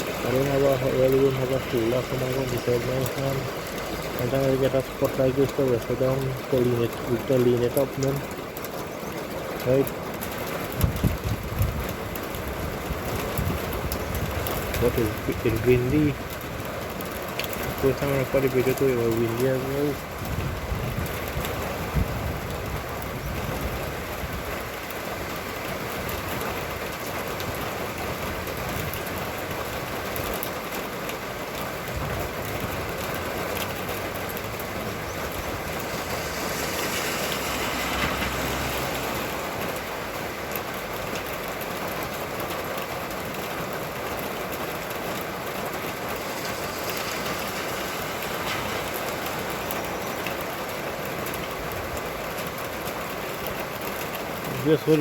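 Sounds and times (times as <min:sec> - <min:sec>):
steady rain falling: 0:00.0 - 0:55.0
gusty wind rumbling: 0:10.7 - 0:15.2, 0:20.0 - 0:24.8, 0:31.8 - 0:40.2.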